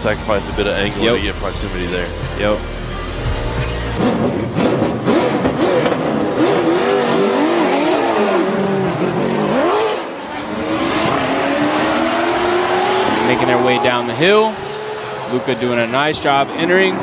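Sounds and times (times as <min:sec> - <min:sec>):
car engines revving hard: 0:03.5 - 0:17.0.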